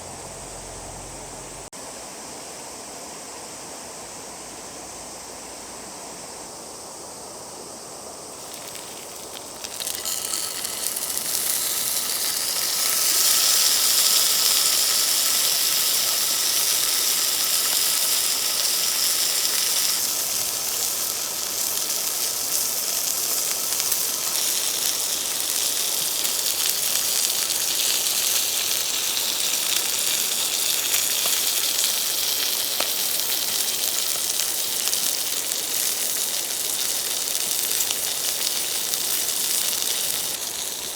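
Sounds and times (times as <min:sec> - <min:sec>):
food sizzling in a pan: 0:08.3 - 0:40.9.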